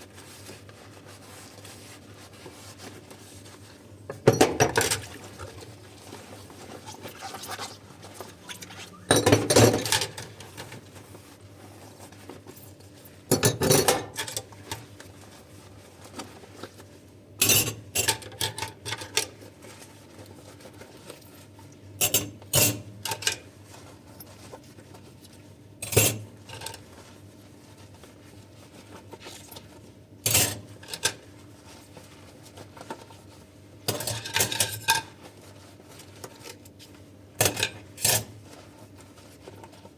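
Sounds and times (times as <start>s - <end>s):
dishes and cutlery clinking: 8.5s - 10.4s.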